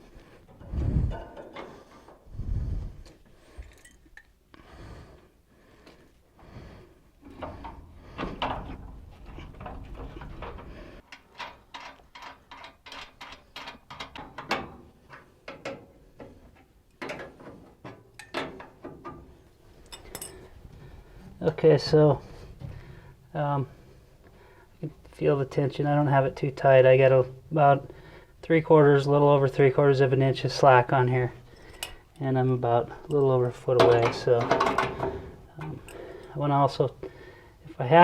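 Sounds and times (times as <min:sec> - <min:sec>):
metal knocks and clanks: 0:00.5 - 0:02.2, 0:07.2 - 0:16.4, 0:17.0 - 0:19.4, 0:33.6 - 0:35.9.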